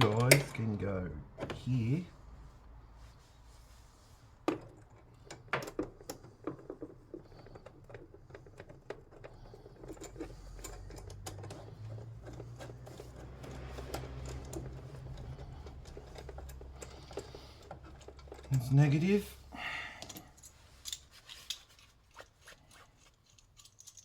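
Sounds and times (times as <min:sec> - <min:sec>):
small metal parts clicking: 0:07.3 - 0:18.8, 0:20.0 - 0:24.0.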